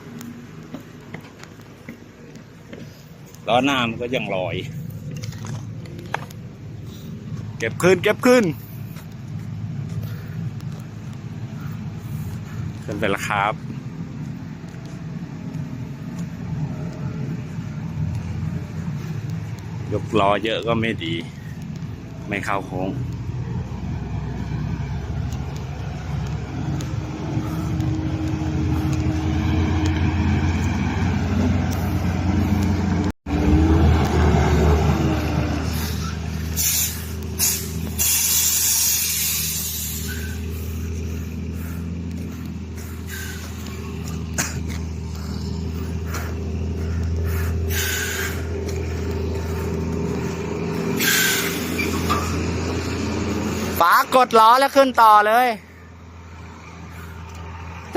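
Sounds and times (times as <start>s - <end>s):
diesel truck engine under load: 0.0s - 57.9s
air brake hisses: 35.7s - 41.0s, 47.3s - 48.5s, 51.0s - 52.4s.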